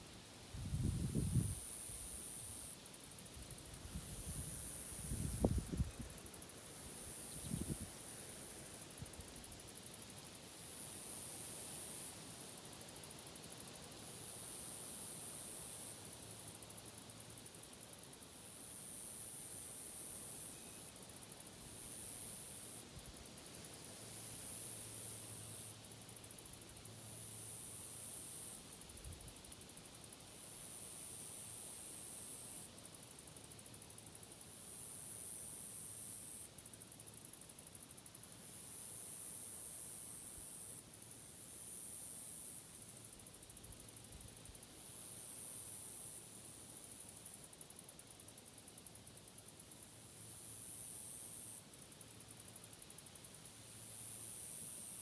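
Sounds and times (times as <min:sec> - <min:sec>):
high-pitched hiss: 0:00.0 - 0:55.0
wind rumble on microphone: 0:00.5 - 0:01.6, 0:03.8 - 0:06.2, 0:07.4 - 0:07.9
high-pitched insect buzz: 0:07.0 - 0:08.1.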